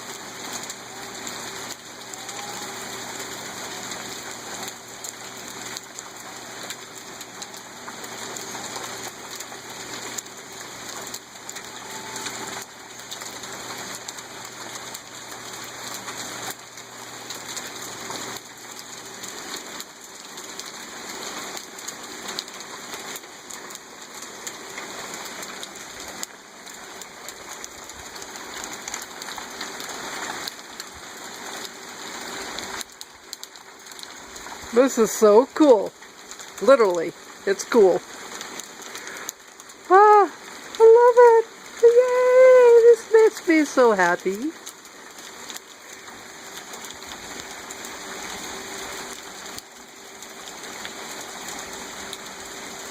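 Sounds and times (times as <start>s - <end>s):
hail pattering: 0.0s - 52.9s.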